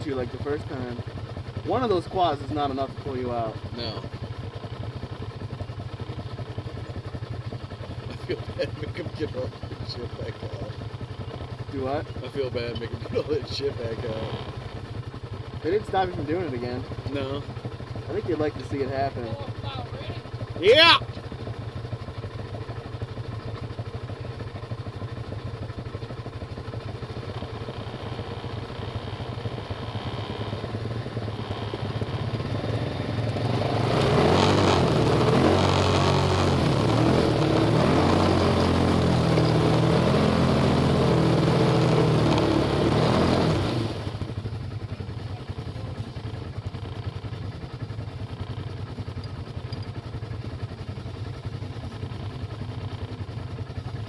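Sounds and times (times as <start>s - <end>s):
off-road vehicle engine idling: 0.0s - 54.0s
engine revving hard: 31.3s - 44.2s.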